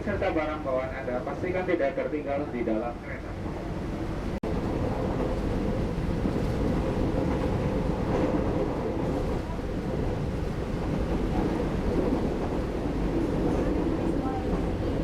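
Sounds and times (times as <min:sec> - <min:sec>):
electric train rumbling on track: 0:00.0 - 0:15.0.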